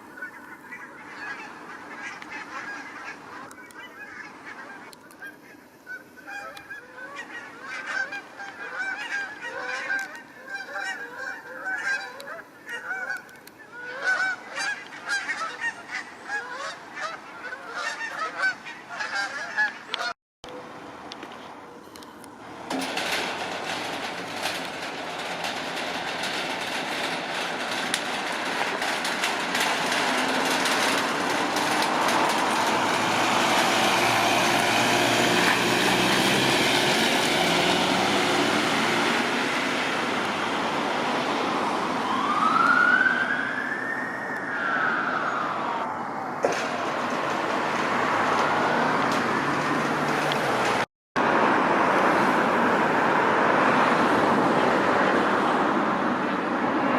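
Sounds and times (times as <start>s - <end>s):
heavy vehicle engine: 19.4s - 42.3s, 46.4s - 56.9s
siren wailing: 41.8s - 46.1s.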